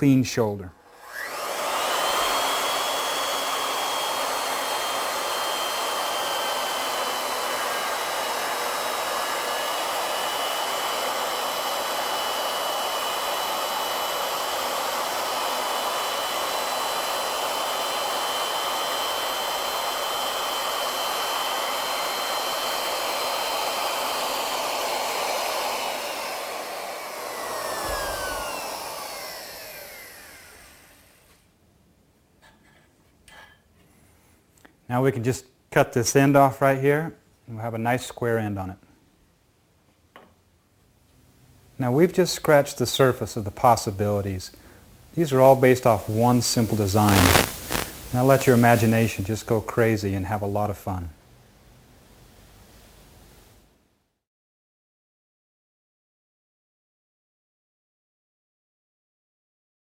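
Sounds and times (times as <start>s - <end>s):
wood router whining: 0.8s - 31.4s, 45.3s - 49.8s.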